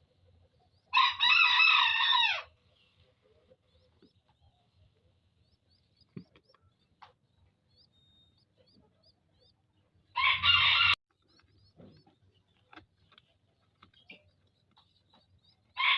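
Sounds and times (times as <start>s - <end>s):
small birds chirping: 0.0s - 1.3s, 2.5s - 15.9s
rooster crowing: 0.9s - 2.5s, 10.2s - 11.0s.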